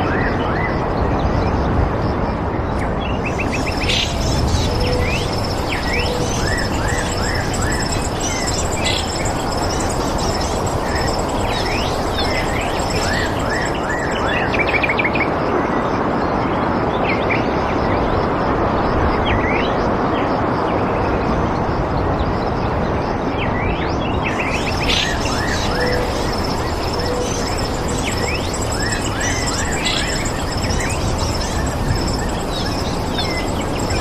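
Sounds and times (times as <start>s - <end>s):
steady rushing noise: 1.8s - 15.4s, 24.2s - 34.0s
birds chirping and calling: 3.2s - 14.8s, 24.3s - 34.0s.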